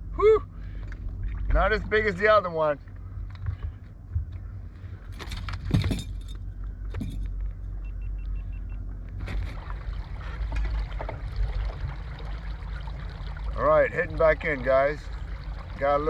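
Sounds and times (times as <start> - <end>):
steady low rumble: 0.0 - 16.0
fishing gear knocks and metallic rattles: 5.0 - 7.6
faint high beeps: 7.8 - 8.8.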